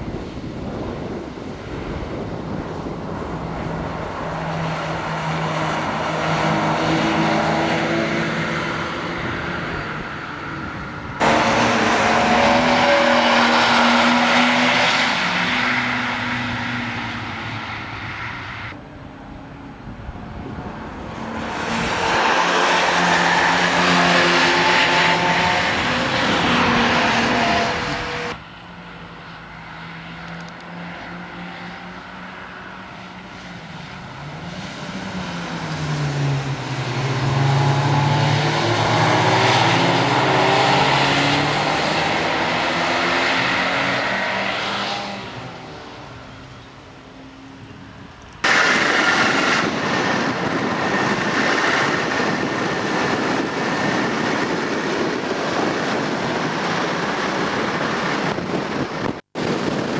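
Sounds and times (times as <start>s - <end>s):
loud rushing noise: 0.0s - 18.8s, 20.3s - 28.4s, 48.4s - 59.9s
sports car engines passing: 0.0s - 59.9s.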